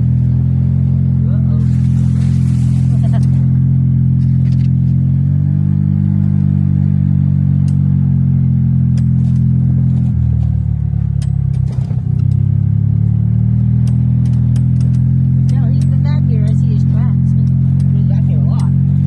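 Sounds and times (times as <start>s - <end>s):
golf cart motor droning: 0.0s - 19.0s
sharp clicks and rattles: 1.7s - 5.0s, 8.9s - 12.6s, 13.8s - 19.0s.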